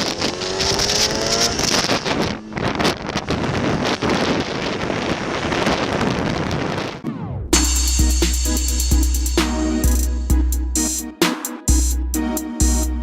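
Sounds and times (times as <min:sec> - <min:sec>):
wind and road noise: 0:00.0 - 0:07.6
motorcycle engine accelerating: 0:00.0 - 0:10.0.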